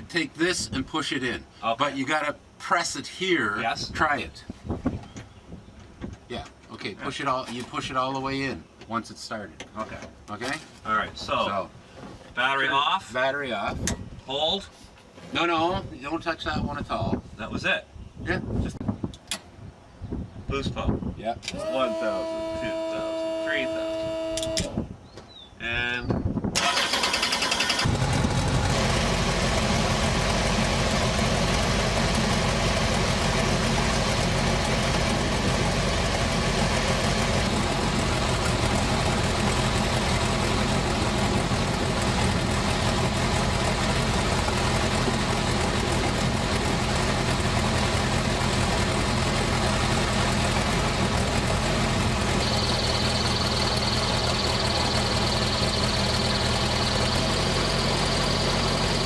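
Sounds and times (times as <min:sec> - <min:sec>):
helicopter engine drone: 0:27.8 - 0:59.0.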